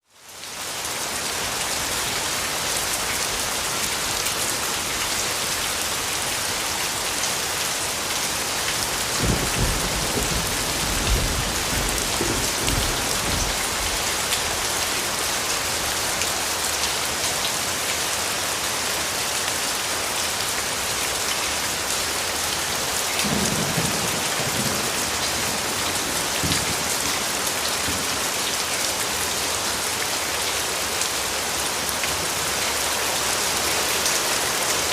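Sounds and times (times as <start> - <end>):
heavy rain falling: 0.0 - 34.9
distant thunder rumbles: 9.0 - 14.6, 23.2 - 28.1.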